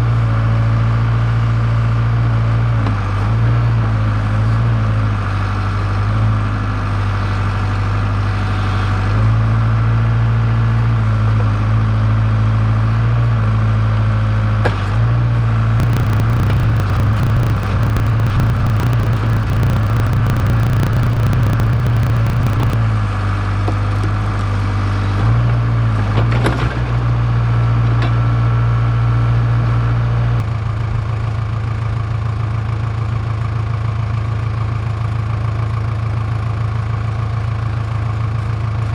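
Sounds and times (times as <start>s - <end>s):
rapid clicking and clatter: 15.8s - 22.8s.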